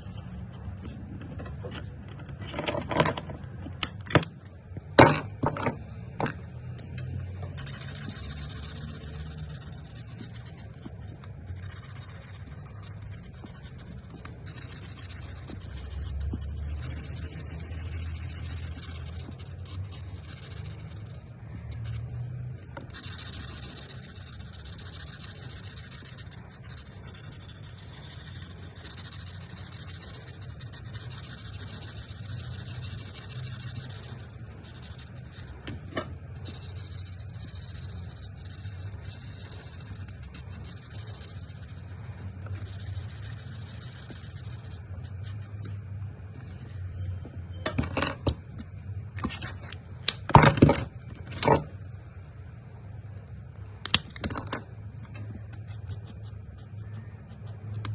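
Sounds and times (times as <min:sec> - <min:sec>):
marker tip rubbing on paper: 0:07.5 - 0:22.1, 0:22.8 - 0:45.6, 0:55.5 - 0:57.9.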